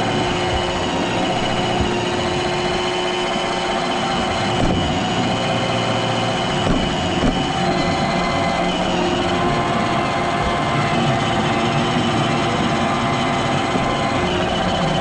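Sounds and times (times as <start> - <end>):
robot vacuum whirring: 0.0 - 15.0.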